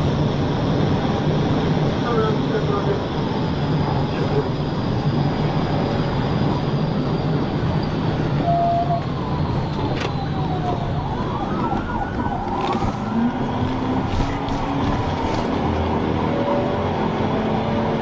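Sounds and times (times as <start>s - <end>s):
car road and engine rumble: 0.0s - 18.0s
police siren wailing: 6.3s - 18.0s.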